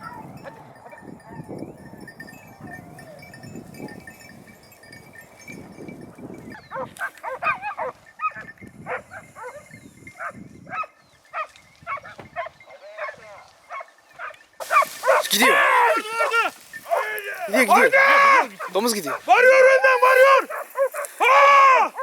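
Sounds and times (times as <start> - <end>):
hunting dogs baying: 0.0 - 5.5, 6.1 - 22.0
low rustling: 14.6 - 21.2.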